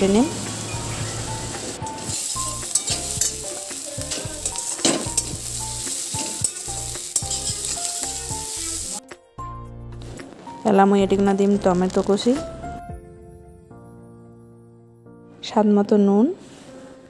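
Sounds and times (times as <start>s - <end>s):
paste sizzling in oil: 0.0s - 9.0s
spatula scraping a metal wok: 1.9s - 8.9s.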